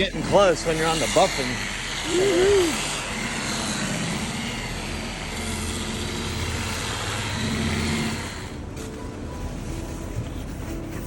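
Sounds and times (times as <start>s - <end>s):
buffer grinding on hull: 2.7s - 11.0s.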